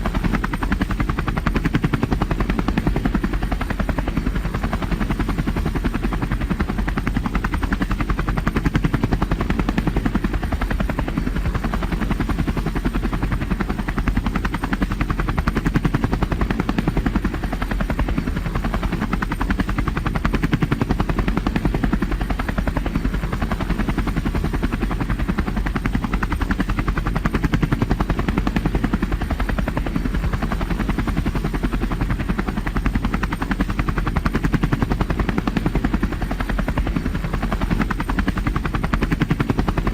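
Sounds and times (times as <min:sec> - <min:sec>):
helicopter engine noise: 0:00.0 - 0:39.9
helicopter rotor chopping: 0:00.0 - 0:39.9.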